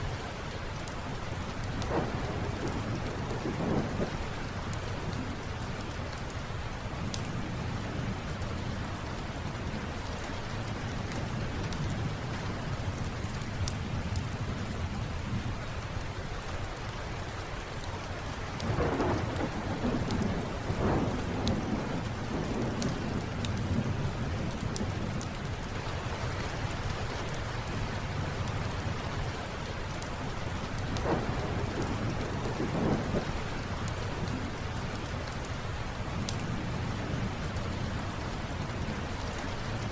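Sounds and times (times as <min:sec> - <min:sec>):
steady rain: 0:00.0 - 0:39.9
wood fire crackling: 0:00.0 - 0:39.9
rolling thunder: 0:01.6 - 0:05.4, 0:18.6 - 0:25.5, 0:30.5 - 0:35.4.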